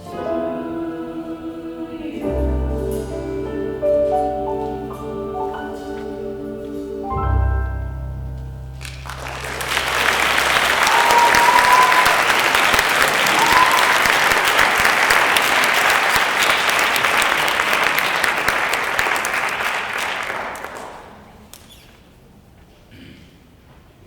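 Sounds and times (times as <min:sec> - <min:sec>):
instrumental chord: 0:00.0 - 0:10.7
audience applauding: 0:08.8 - 0:21.7
high whistles from crowd: 0:09.1 - 0:14.8.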